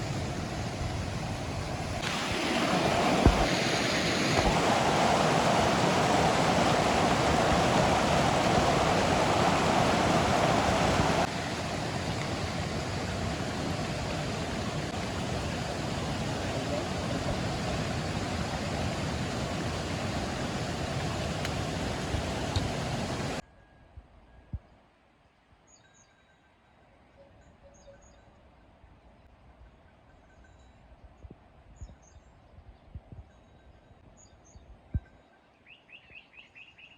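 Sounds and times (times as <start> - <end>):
waterfall rushing: 0.0 - 23.4
faint clicks: 22.5 - 22.7.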